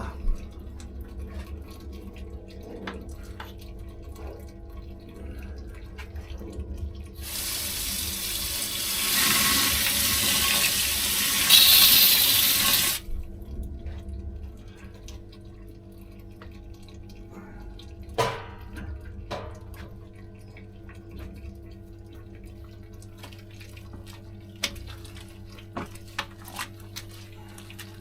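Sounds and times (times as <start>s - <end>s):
water tap running: 7.2s - 13.1s.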